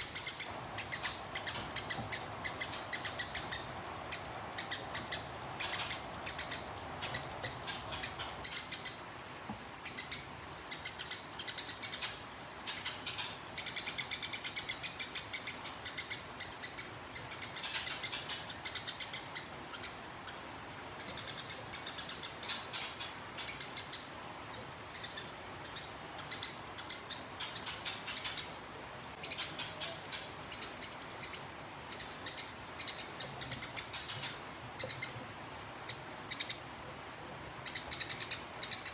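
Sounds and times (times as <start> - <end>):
sparrow chirping rapidly: 0.0 - 9.0, 24.8 - 35.2, 37.6 - 38.9.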